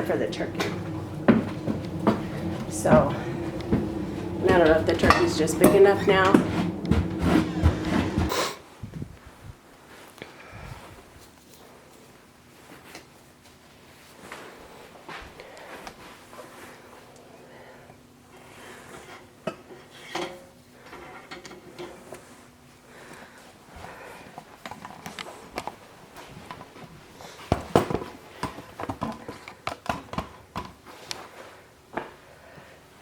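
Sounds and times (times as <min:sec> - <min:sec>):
clicks and clattering knocks: 0:00.0 - 0:08.3
faint steady hum: 0:00.0 - 0:08.4.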